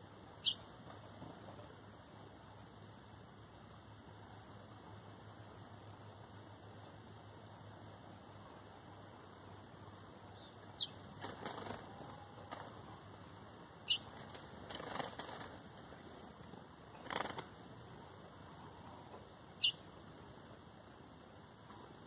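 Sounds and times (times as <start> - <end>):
sharp falling bird calls: 0.4 - 0.6, 13.8 - 15.5, 19.6 - 19.8
bird wings fluttering: 11.1 - 12.9, 14.0 - 16.0, 16.9 - 17.6.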